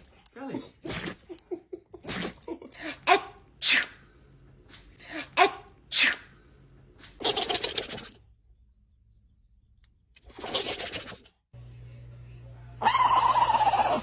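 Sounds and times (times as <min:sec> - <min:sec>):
dog sneezing: 0:03.1 - 0:04.0, 0:05.9 - 0:06.3.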